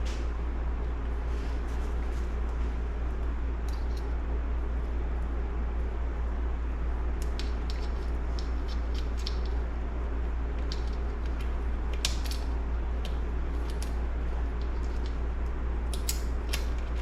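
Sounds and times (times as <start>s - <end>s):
steady low hum: 0.0s - 17.0s
small metal parts clicking: 7.2s - 9.6s, 10.6s - 14.0s, 15.9s - 17.0s.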